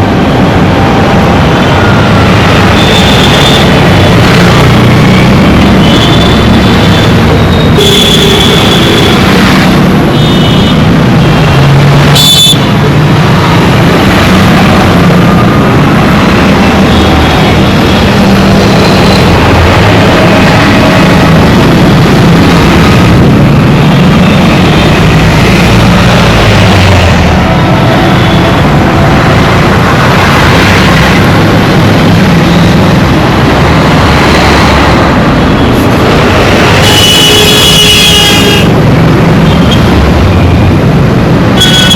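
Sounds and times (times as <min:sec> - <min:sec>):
dense road traffic: 0:00.0 - 0:41.9
vehicle horns: 0:05.0 - 0:11.0, 0:12.1 - 0:12.8, 0:36.4 - 0:38.8, 0:41.6 - 0:41.9.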